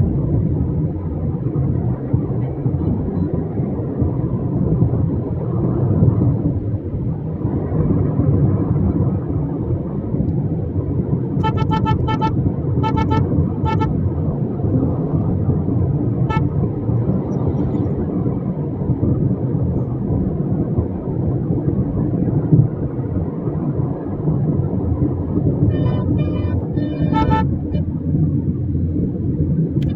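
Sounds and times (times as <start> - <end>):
road traffic rumble: 0.0 - 29.9
vehicle horns beeping: 11.4 - 14.0, 16.2 - 17.8, 25.7 - 27.9.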